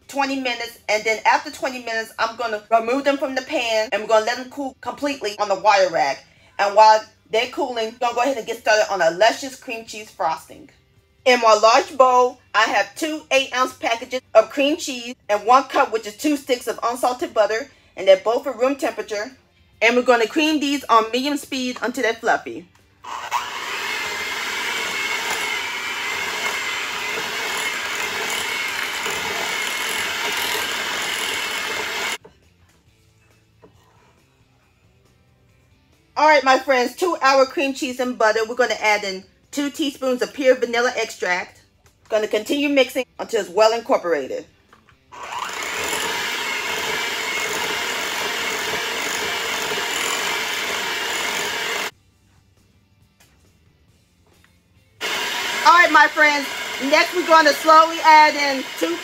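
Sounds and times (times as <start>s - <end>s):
electric hand mixer whine: 23.0s - 32.2s, 45.2s - 51.9s, 55.0s - 59.0s.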